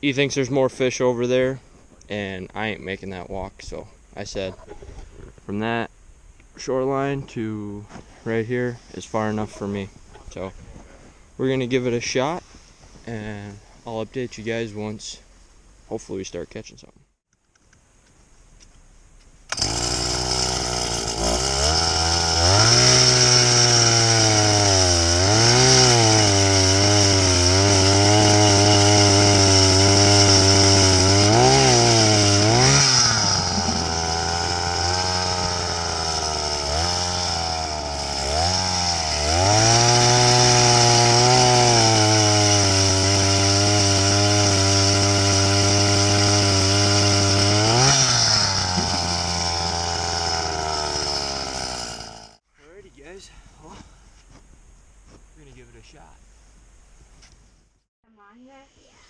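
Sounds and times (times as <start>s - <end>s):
ice auger engine drilling: 19.5s - 52.4s.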